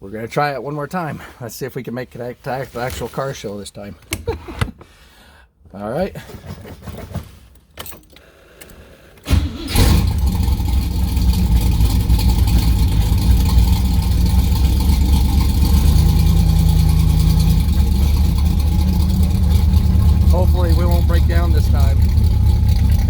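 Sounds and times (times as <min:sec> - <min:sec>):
car engine cranking: 0:09.2 - 0:23.0
car engine idling: 0:09.4 - 0:23.0.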